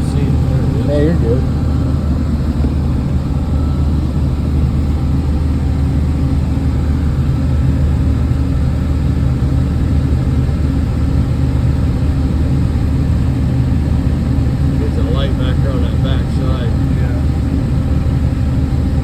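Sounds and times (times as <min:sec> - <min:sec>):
combine harvester engine drone: 0:00.0 - 0:19.0.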